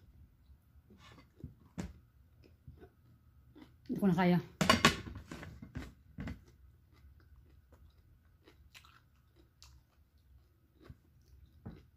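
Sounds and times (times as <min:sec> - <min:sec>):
person biting and chewing vegetable: 0:05.8 - 0:11.9.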